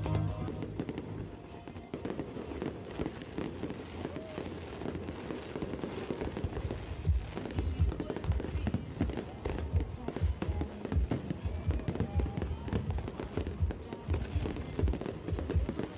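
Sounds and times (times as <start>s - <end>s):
fireworks crackling pops: 0.0s - 15.9s.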